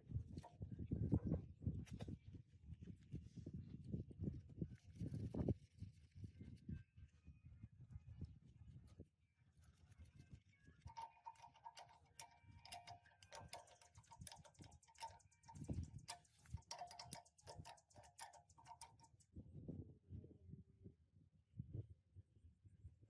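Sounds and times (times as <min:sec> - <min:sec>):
light metallic clicks and taps: 0:10.9 - 0:19.2.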